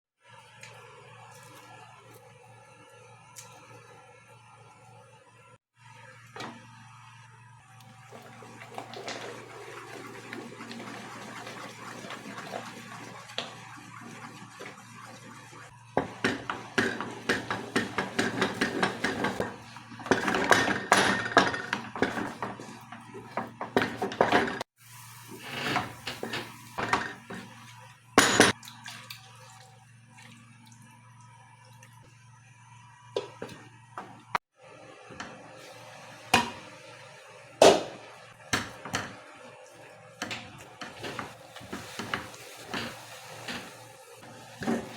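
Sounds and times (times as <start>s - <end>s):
utensil knocking and scraping a pot: 15.9s - 24.7s, 40.2s - 44.9s.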